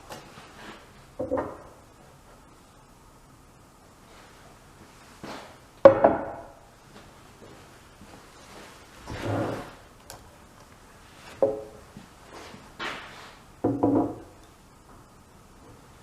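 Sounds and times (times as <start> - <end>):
wood knocking and clunking: 1.2 - 1.8, 5.8 - 6.5, 11.3 - 11.8, 13.6 - 14.3.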